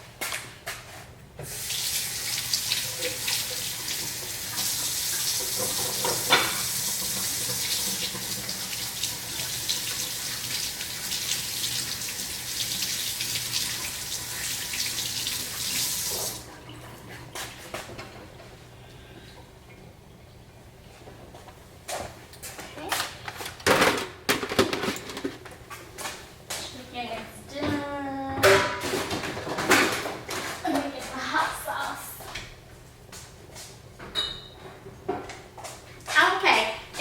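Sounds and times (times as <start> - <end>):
kitchen tap running: 1.4 - 20.4.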